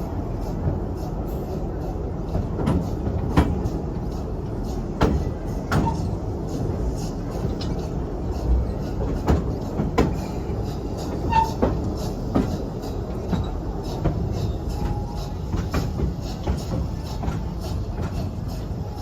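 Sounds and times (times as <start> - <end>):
train rumbling along track: 0.0 - 19.0
wheels clacking over rail joints: 2.3 - 6.2, 7.4 - 19.0
wheel squeak: 5.7 - 6.2, 11.0 - 12.6.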